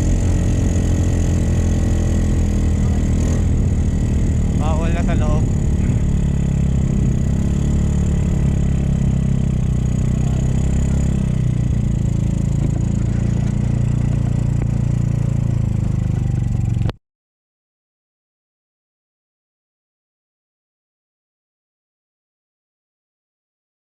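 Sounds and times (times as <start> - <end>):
motorcycle engine running: 0.0 - 17.0
wind and road rumble: 0.0 - 17.0.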